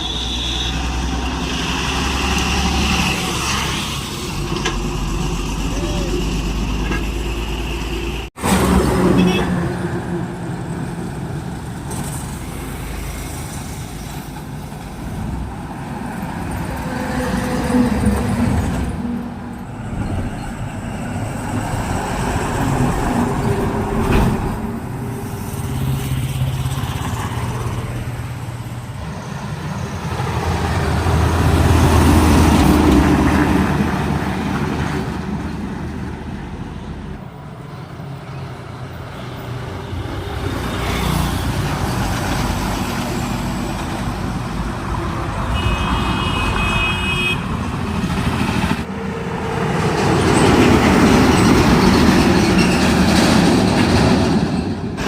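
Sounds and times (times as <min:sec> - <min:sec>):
trucks and vehicles passing: 0:00.0 - 0:55.0.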